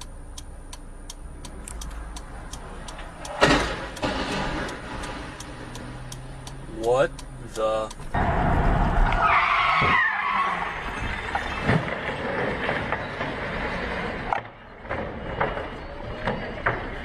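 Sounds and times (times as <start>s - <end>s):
road and engine noise: 0.0s - 17.0s
car tyres squealing: 8.0s - 17.0s.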